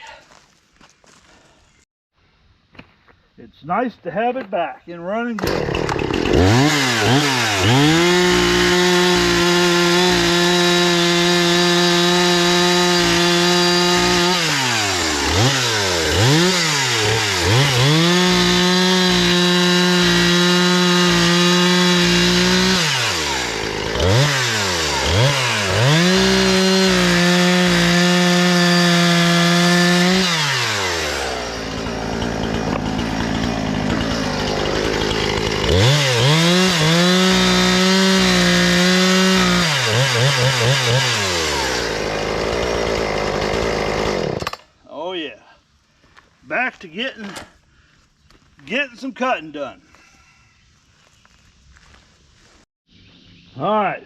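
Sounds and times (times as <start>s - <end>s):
chainsaw running and revving: 5.4s - 44.6s.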